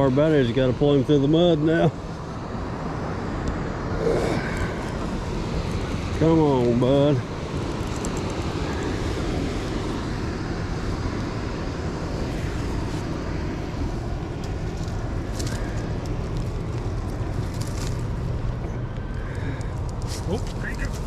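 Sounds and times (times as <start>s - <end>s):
boat engines droning: 0.0s - 21.0s
small clicks and rustles: 7.8s - 8.9s, 14.4s - 18.3s.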